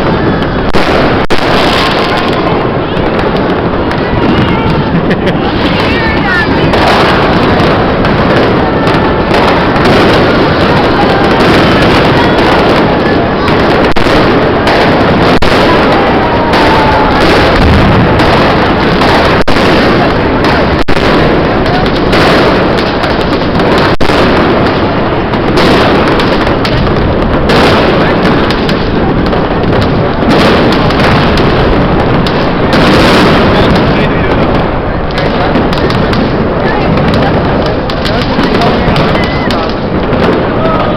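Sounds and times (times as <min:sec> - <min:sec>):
fireworks and firecrackers banging: 0:00.0 - 0:40.9.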